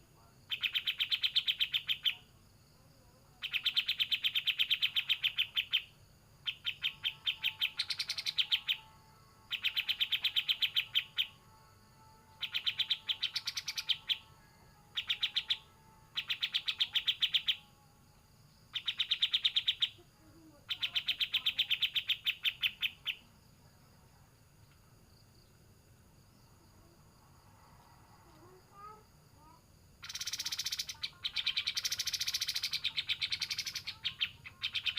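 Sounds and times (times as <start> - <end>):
songbird rapid rattling trill: 0.5 - 2.2, 3.4 - 11.4, 12.3 - 17.7, 18.7 - 20.0, 20.6 - 23.3, 30.0 - 34.9.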